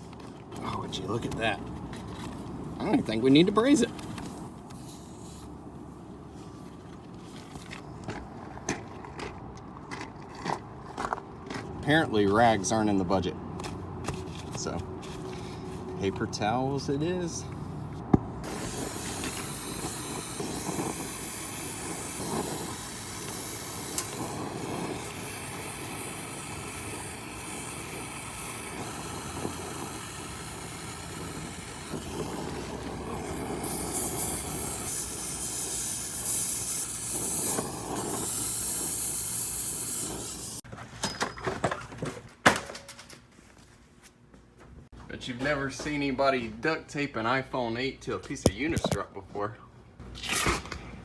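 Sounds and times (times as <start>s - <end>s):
gas hissing from line: 3.6s - 5.6s, 18.4s - 40.6s.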